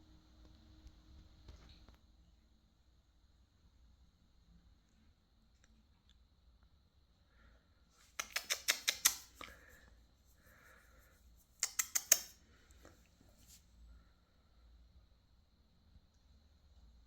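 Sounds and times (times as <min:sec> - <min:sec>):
rapid sharp clicks: 0:08.1 - 0:09.6, 0:11.6 - 0:12.4.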